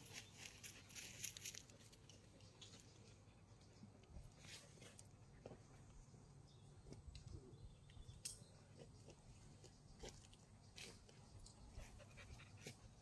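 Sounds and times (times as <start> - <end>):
soft ticks and rustles: 0.0 - 6.2.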